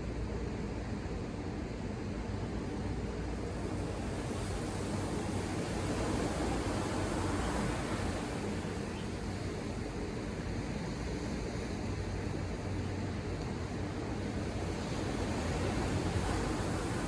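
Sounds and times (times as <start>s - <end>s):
ocean waves washing on shore: 14.5s - 17.0s.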